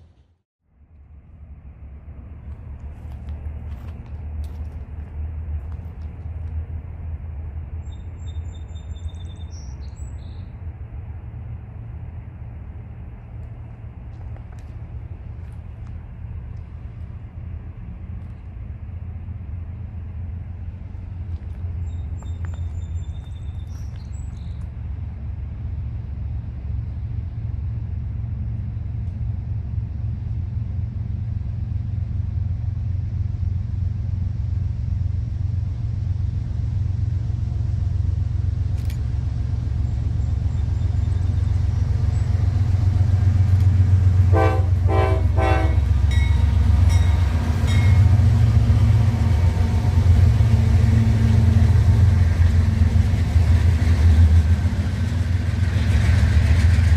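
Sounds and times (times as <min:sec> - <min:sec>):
diesel locomotive rumble: 0:00.0 - 0:56.9
train horn blasts: 0:44.2 - 0:48.1.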